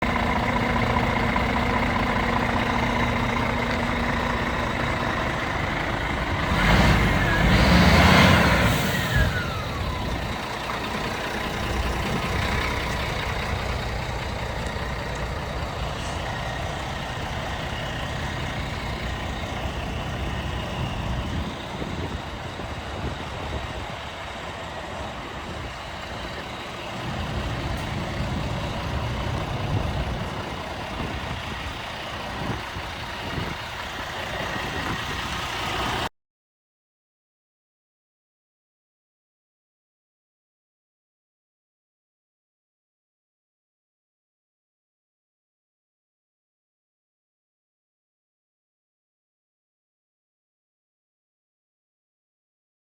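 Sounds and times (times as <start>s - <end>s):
truck diesel engine running: 0.0s - 36.1s.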